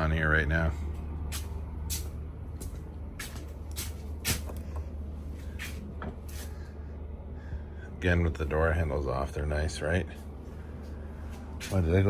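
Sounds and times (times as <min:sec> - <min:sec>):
low mechanical hum: 0:00.0 - 0:12.0
footsteps: 0:00.9 - 0:04.6, 0:10.8 - 0:12.0.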